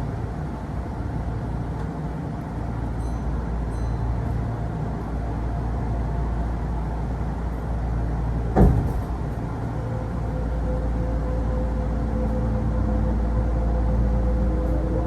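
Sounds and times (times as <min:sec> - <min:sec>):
steady mechanical tone: 0:07.3 - 0:15.0
train wheels rumbling: 0:07.4 - 0:10.4
sharp knock: 0:08.6 - 0:09.2.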